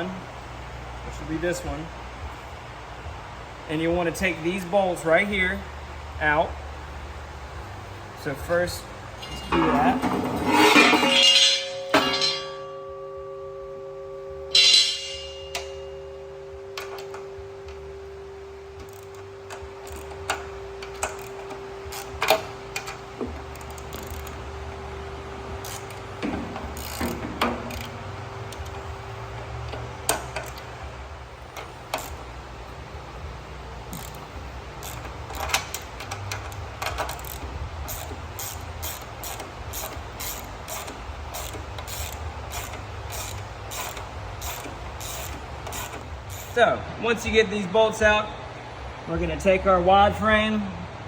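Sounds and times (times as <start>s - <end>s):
ratchet wrench clicking: 18.8s - 24.4s, 25.6s - 28.8s, 31.5s - 32.3s, 33.9s - 46.6s.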